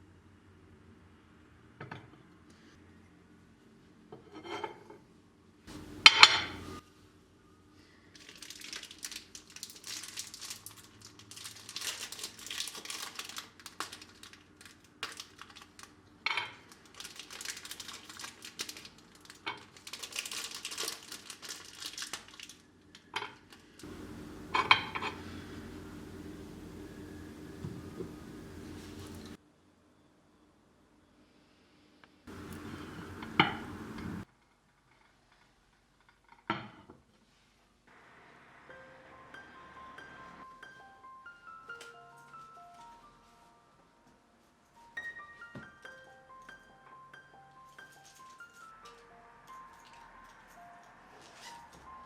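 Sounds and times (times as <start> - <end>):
rustling and crinkling: 8.1 - 29.4, 32.3 - 36.2
small objects clinking: 8.2 - 26.8, 47.6 - 50.6.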